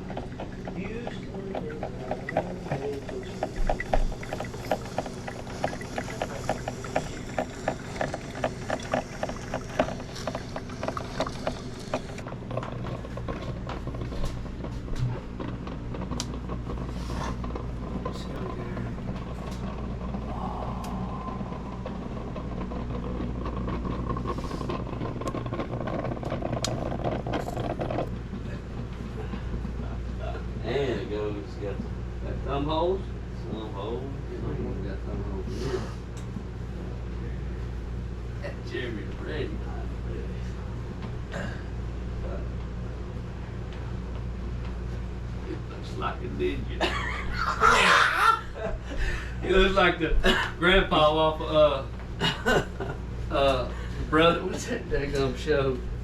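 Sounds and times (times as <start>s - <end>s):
engine idling: 0.0s - 30.4s
boat motor humming: 0.0s - 56.0s.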